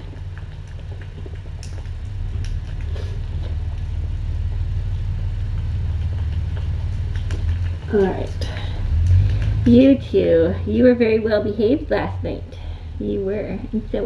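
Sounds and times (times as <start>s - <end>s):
faint small clicks: 0.0s - 3.9s, 5.5s - 9.7s
cat purring: 0.0s - 14.0s.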